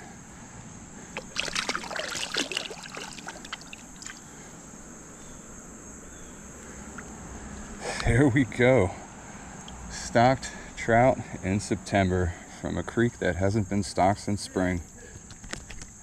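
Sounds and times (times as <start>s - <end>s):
water splashing and sloshing: 1.1s - 4.4s.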